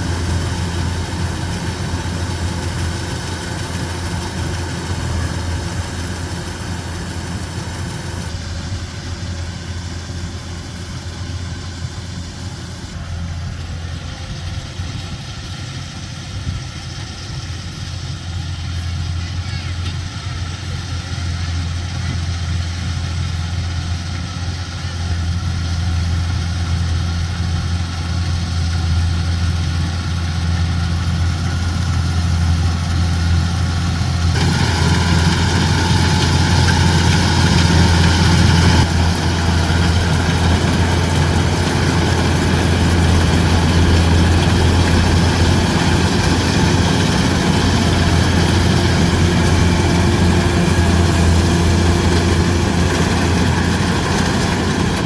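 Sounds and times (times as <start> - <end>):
diesel engine humming: 0.0 - 55.0
mechanical rattle and whir: 30.1 - 55.0.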